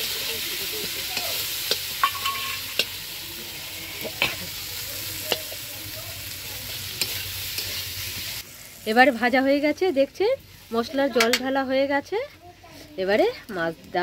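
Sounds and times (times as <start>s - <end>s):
food sizzling in oil: 0.0s - 14.0s
metal spatula scraping pan: 2.0s - 3.0s.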